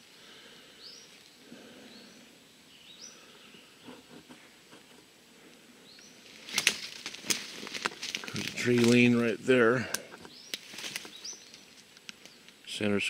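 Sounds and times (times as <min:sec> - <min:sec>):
twigs crackling and snapping: 0:06.2 - 0:12.6.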